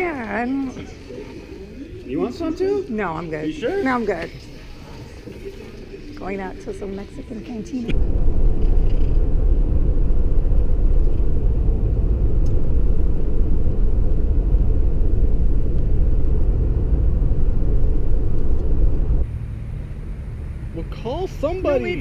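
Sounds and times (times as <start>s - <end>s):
car rumbling on the move: 7.9s - 20.9s.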